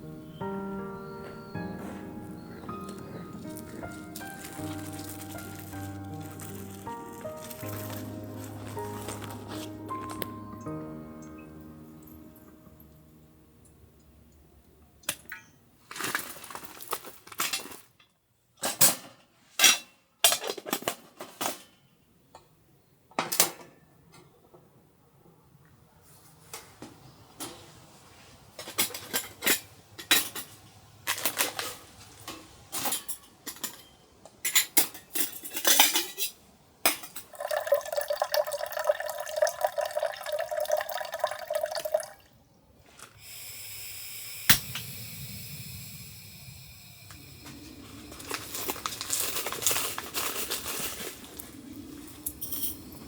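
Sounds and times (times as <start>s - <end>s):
water pouring: 3.4s - 10.3s, 37.1s - 42.4s
cookware clinking and clattering: 32.8s - 42.2s
steady hiss: 42.8s - 53.0s.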